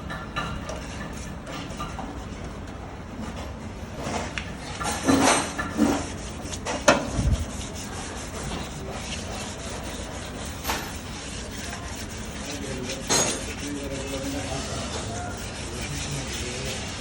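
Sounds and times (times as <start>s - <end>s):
scrubbing on engine block: 4.0s - 17.0s.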